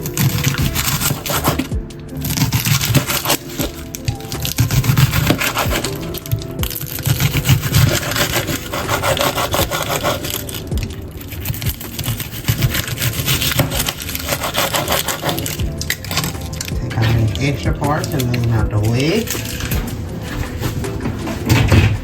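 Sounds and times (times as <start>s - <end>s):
knife cutting onion: 0.0s - 10.6s, 11.4s - 17.0s.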